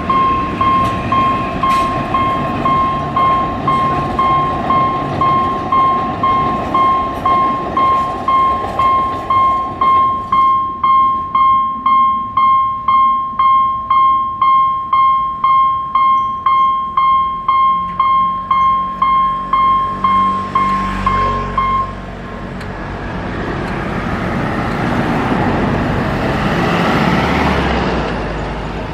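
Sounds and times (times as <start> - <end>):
level crossing bell ringing: 0.0 - 22.1
passing train rumble: 0.0 - 28.9.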